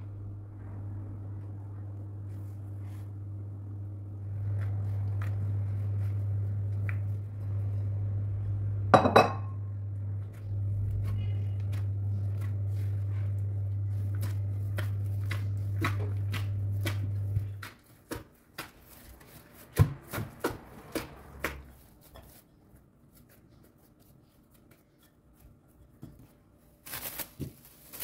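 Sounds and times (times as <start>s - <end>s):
steady low hum: 0.0s - 17.8s
dishes and glassware clinking: 9.0s - 9.6s.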